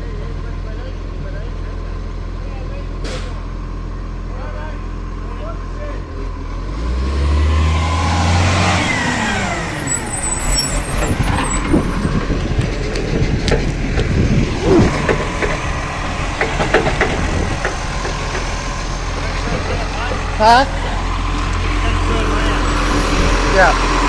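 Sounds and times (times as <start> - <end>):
garbage truck engine and hydraulics: 6.3 - 24.0
knocks and clattering: 10.7 - 20.4.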